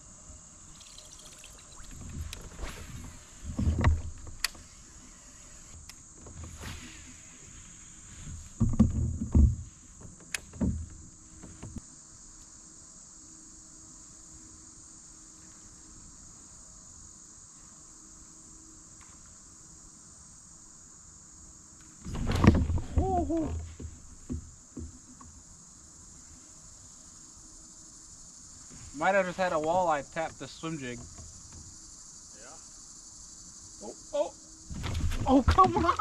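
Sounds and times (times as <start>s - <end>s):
high-pitched insect buzzing: 0.6s - 2.4s, 4.4s - 6.2s.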